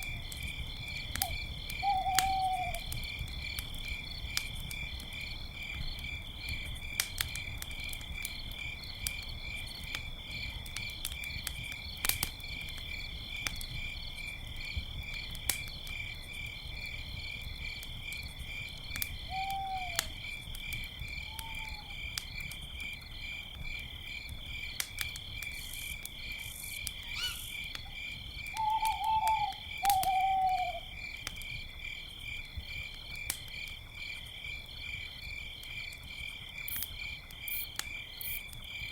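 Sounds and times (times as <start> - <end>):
campfire crackling and popping: 0.0 - 38.9
crickets chirping: 0.0 - 38.9
owl hooting: 1.2 - 2.8, 19.3 - 20.0, 21.3 - 22.0, 27.0 - 27.6, 28.6 - 30.9.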